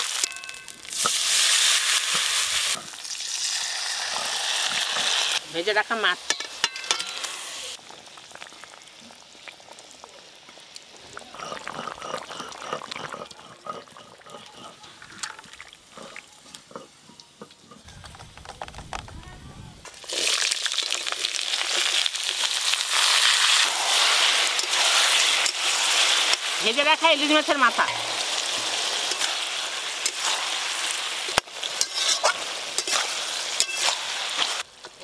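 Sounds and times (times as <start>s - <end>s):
food sizzling in hot oil: 0.0s - 17.9s, 19.8s - 35.0s
utensils clicking on cookware: 31.3s - 34.0s.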